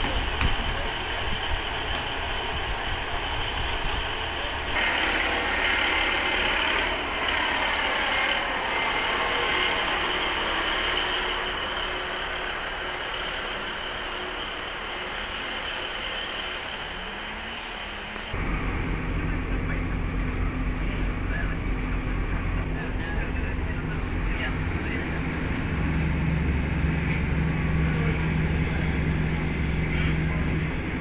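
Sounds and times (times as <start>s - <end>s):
diesel train pulling away: 0.0s - 31.0s.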